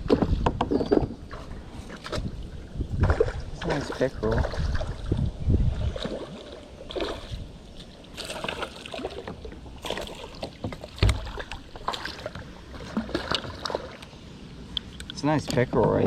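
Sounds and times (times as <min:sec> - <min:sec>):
knocks and rustles against hull: 0:00.0 - 0:06.3, 0:08.4 - 0:14.0, 0:15.4 - 0:16.0.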